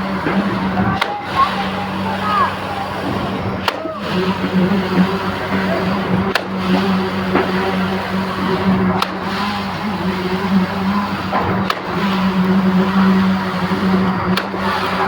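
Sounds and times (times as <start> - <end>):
concrete pump engine running: 0.0 - 15.0
sharp clack: 3.6 - 3.9.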